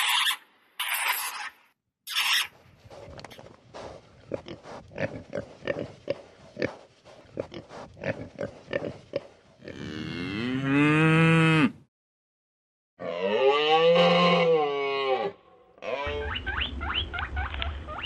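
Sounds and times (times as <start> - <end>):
pigs grunting: 3.0 - 10.1
cow mooing: 9.7 - 11.8, 13.0 - 16.2.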